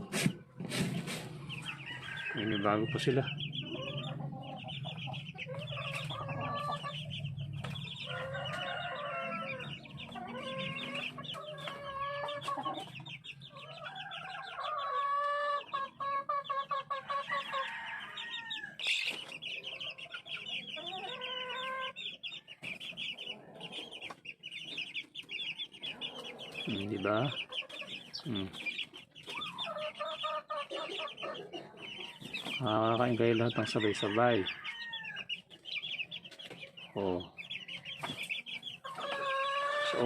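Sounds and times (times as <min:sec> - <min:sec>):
chickens clucking: 0:00.0 - 0:40.0.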